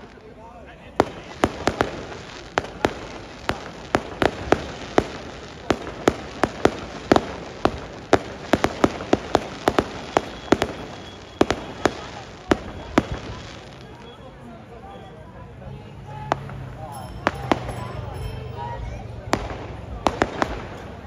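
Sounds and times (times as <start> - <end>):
crackling hiss: 0.0 - 14.2
fireworks bangs: 0.0 - 14.3, 16.1 - 21.0.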